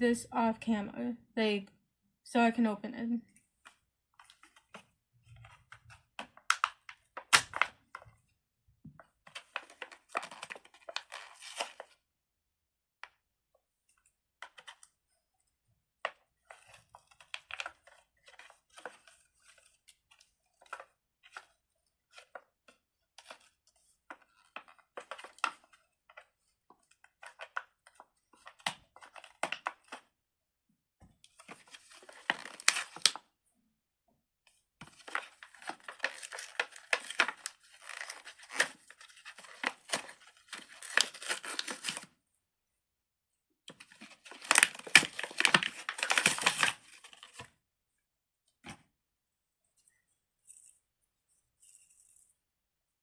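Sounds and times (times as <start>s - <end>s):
plastic packaging crinkling: 31.5s - 33.2s, 34.9s - 42.0s, 43.8s - 47.5s.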